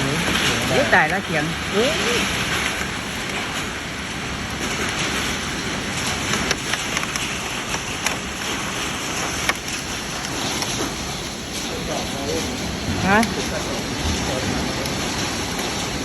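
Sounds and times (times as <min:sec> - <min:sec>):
hailstones knocking on surfaces: 0:00.0 - 0:16.0
rain and hail hissing: 0:00.0 - 0:16.0.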